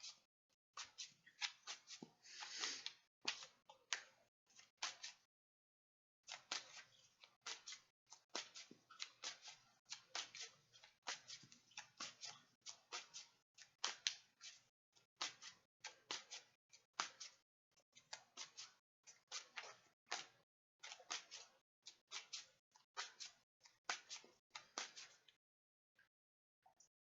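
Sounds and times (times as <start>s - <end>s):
cards being shuffled: 6.3s - 12.3s, 23.9s - 25.2s.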